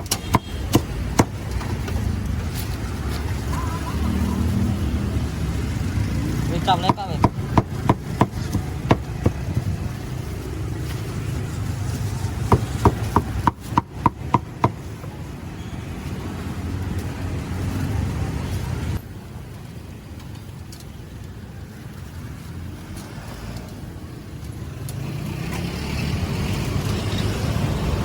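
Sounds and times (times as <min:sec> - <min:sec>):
street traffic noise: 0:00.0 - 0:28.0
knife chopping on a board: 0:06.8 - 0:09.8, 0:12.5 - 0:14.8.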